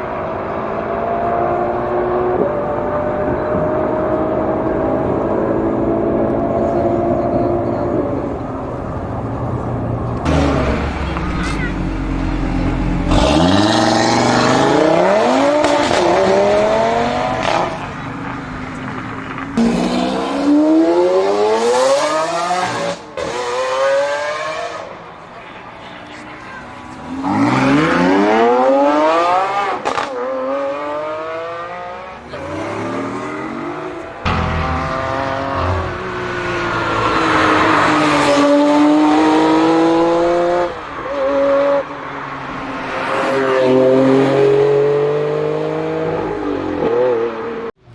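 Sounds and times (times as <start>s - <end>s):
car engine accelerating hard: 10.1s - 18.1s, 27.0s - 41.8s.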